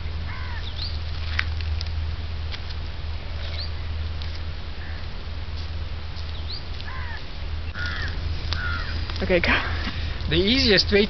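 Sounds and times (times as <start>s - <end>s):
steady low hum: 0.0s - 11.0s
crow-like caws: 0.3s - 0.7s, 4.8s - 5.1s, 6.8s - 9.1s.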